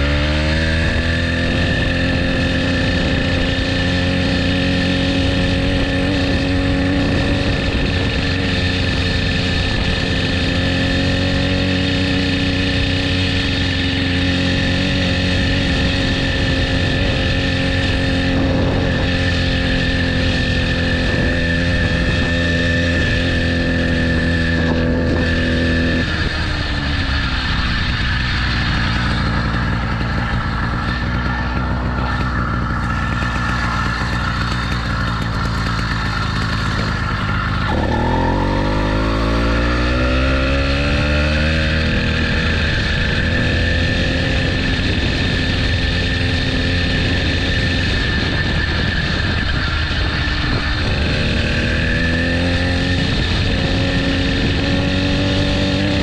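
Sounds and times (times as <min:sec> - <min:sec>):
motorbike engine running: 0:00.0 - 0:56.0.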